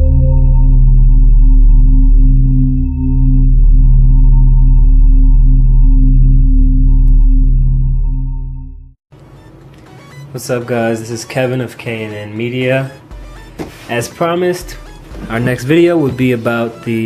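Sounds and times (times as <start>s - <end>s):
synthesized bass drone: 0.0s - 9.0s, 13.1s - 13.9s, 14.6s - 16.4s.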